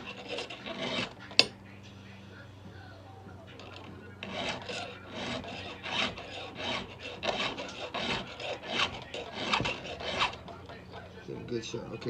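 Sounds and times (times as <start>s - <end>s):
file scraping chainsaw chain: 0.0s - 1.6s, 3.5s - 11.4s.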